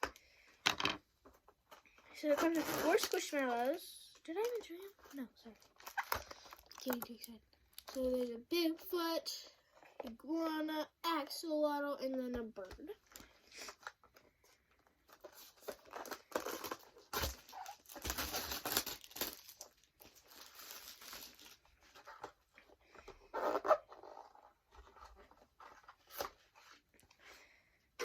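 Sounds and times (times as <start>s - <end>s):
packaging tearing and crinkling: 2.3s - 3.8s, 5.6s - 7.3s, 15.2s - 21.7s.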